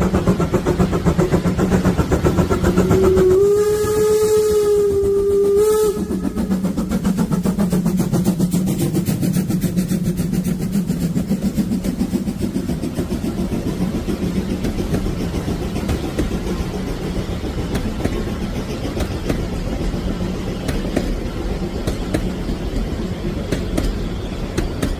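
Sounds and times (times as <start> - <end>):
steam locomotive exhaust chuffs: 0.0 - 24.9
steam locomotive whistle: 2.6 - 6.7.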